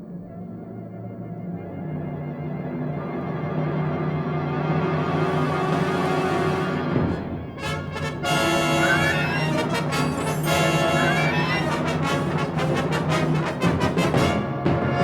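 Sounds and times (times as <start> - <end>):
brass-heavy wind band playing: 4.7 - 15.0.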